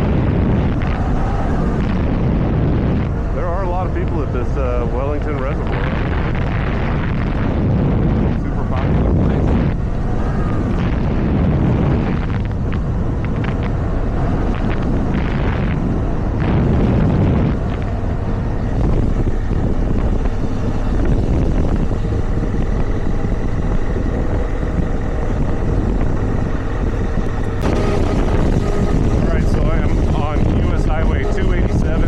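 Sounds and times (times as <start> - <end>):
wind noise on microphone: 0.0 - 32.0
motorcycle engine running: 9.7 - 32.0.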